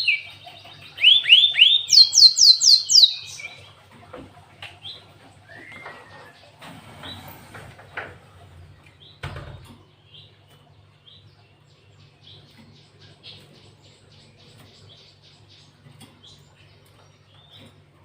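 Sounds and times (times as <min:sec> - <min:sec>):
bird chirping: 0:00.0 - 0:03.8, 0:07.9 - 0:18.0
low steady hum: 0:00.0 - 0:18.0.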